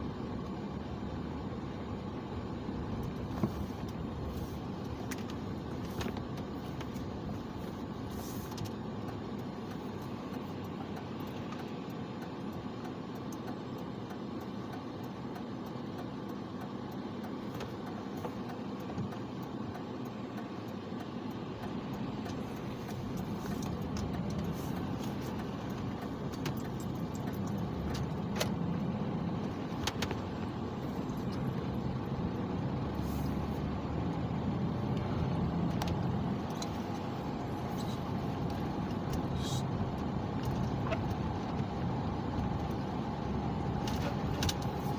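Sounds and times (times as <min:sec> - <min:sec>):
car road and engine noise: 0:00.0 - 0:44.9.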